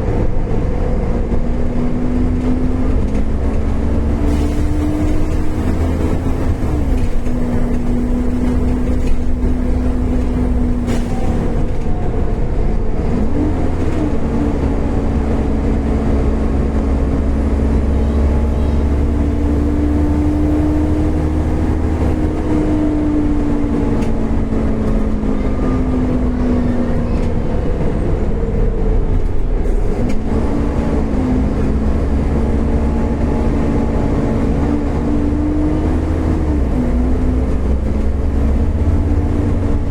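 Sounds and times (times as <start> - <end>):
bus engine rumble with whine: 0.0 - 39.9.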